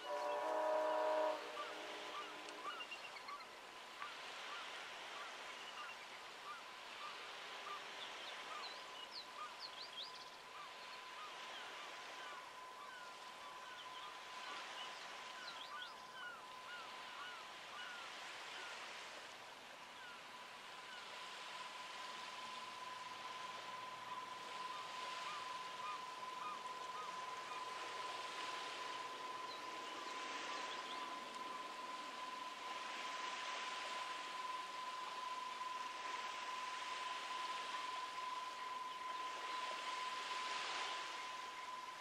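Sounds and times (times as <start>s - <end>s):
steady background hiss: 0.0s - 42.0s
birds chirping: 19.8s - 42.0s
thin high tone: 19.9s - 42.0s.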